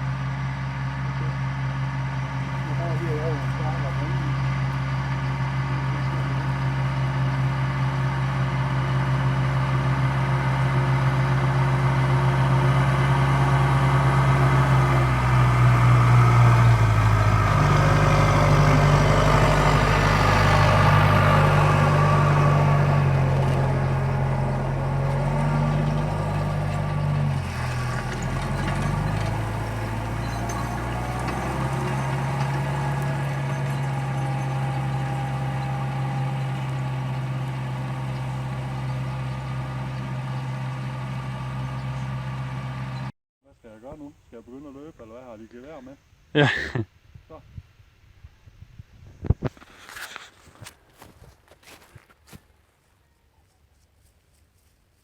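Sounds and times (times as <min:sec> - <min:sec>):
tractor engine running: 0:00.0 - 0:43.1.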